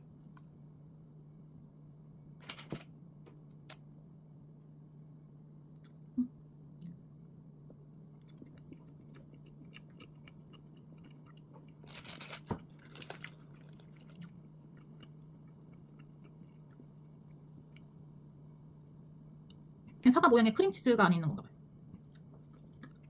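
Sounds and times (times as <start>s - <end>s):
steady low hum: 0.0s - 23.0s
bread being chewed: 7.6s - 18.0s, 21.8s - 23.0s.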